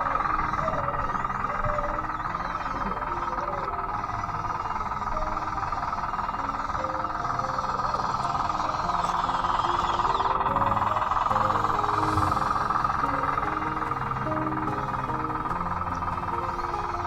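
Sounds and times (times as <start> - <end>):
electric drive whine: 0.0 - 17.0
soft background music: 0.0 - 17.0.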